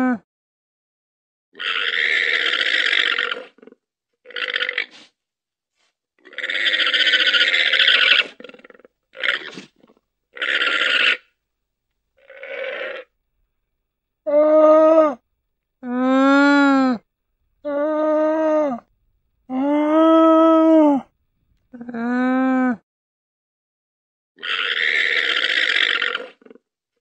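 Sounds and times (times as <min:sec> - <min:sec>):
llama rasping calls: 0:06.2 - 0:11.4, 0:12.2 - 0:13.2, 0:24.4 - 0:26.4.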